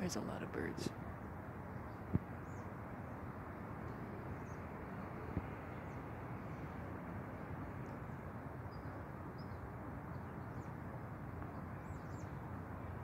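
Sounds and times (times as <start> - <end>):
small birds chirping: 11.4 - 12.5.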